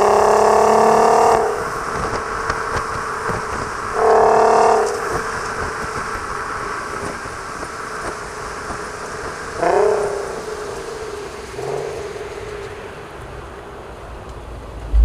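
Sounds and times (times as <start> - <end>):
car exhaust note: 0.0 - 6.0
road and engine noise: 0.0 - 15.0.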